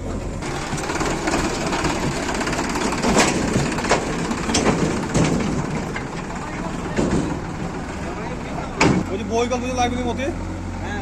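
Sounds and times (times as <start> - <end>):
grinding clatter: 0.0 - 9.2
diesel engine running: 0.0 - 11.0
sharp metallic clanks: 0.8 - 7.6.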